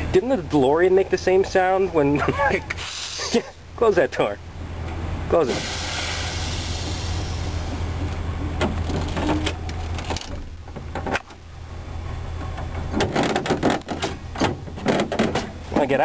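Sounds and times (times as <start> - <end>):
steady low hum: 0.0 - 16.0
air hiss: 2.8 - 3.4, 5.5 - 7.8
truck door clicks and knocks: 8.6 - 11.4, 12.4 - 15.9.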